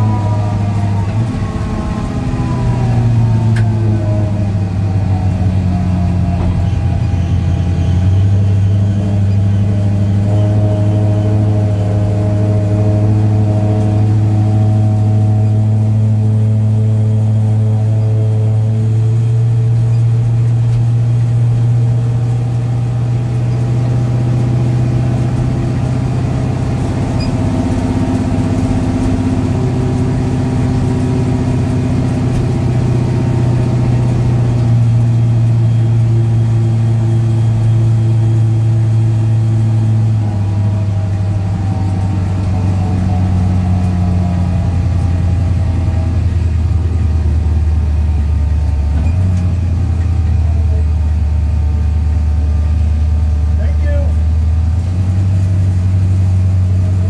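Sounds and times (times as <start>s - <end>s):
car engine droning at low rpm: 0.0s - 57.0s.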